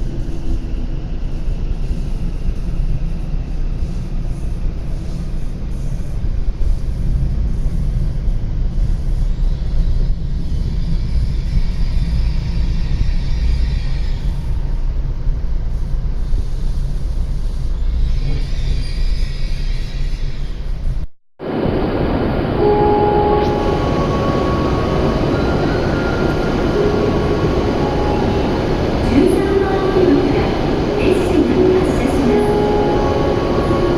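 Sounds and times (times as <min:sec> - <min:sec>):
train running low rumble: 0:00.0 - 0:33.9
faint high whine: 0:21.4 - 0:33.9.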